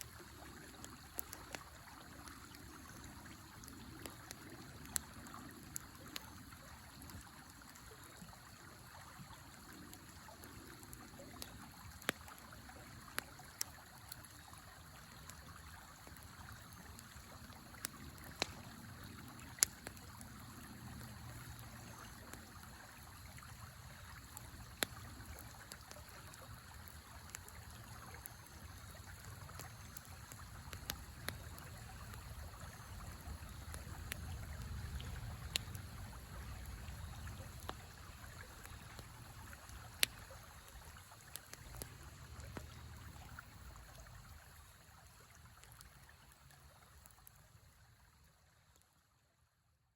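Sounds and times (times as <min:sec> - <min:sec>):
campfire crackling: 0:00.0 - 0:48.8
fire sharp pops: 0:17.7 - 0:20.4, 0:27.3 - 0:42.8.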